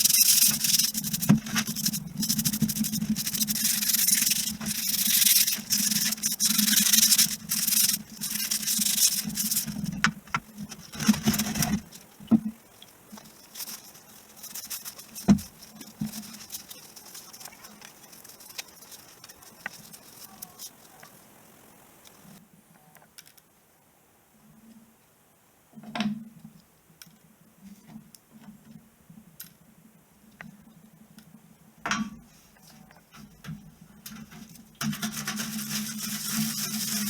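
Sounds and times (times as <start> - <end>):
scrubbing metal parts: 0.0 - 22.3, 33.2 - 37.0.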